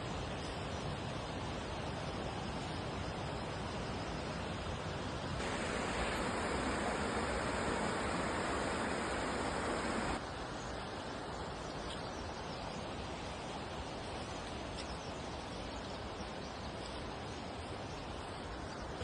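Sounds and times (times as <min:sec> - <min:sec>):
waterfall rushing: 0:05.4 - 0:10.2.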